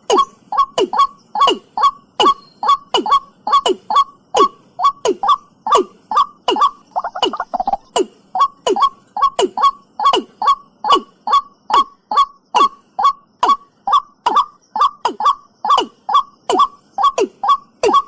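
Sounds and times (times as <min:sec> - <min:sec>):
bird calling sharp descending notes: 0:00.0 - 0:18.0.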